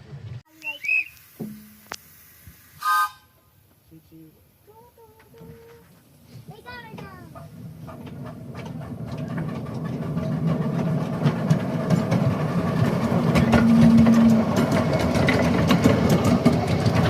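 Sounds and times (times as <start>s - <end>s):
miniature train rumble: 4.0s - 17.0s
wheels clicking on rail joints: 4.0s - 17.0s
low steady tone: 13.5s - 14.5s.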